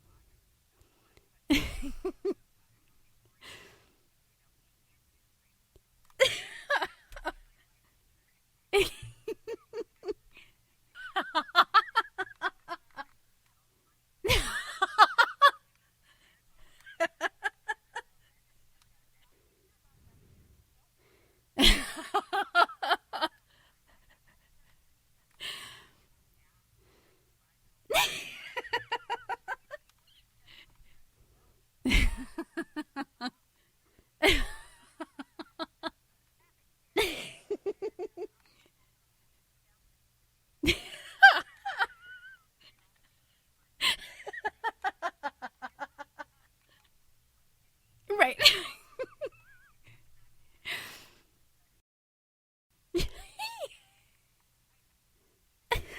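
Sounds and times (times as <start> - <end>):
woman laughing: 1.5 - 2.4, 6.2 - 7.5, 8.8 - 13.1, 14.2 - 15.7, 16.6 - 18.3, 21.6 - 24.7, 27.9 - 30.6, 31.8 - 33.4, 34.2 - 36.0, 37.0 - 38.4, 40.6 - 42.8, 43.8 - 46.5, 48.1 - 50.0, 53.0 - 54.1.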